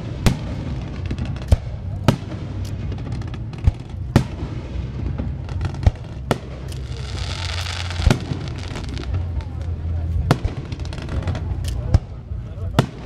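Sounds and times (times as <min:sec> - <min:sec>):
crowd murmur: 0:00.0 - 0:13.0
fireworks bangs: 0:00.0 - 0:13.0.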